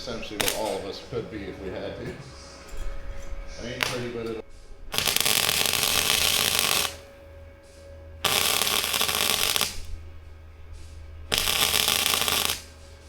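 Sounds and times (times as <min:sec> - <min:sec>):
welder arc crackling: 0:00.0 - 0:01.2, 0:03.6 - 0:10.1, 0:10.8 - 0:13.0.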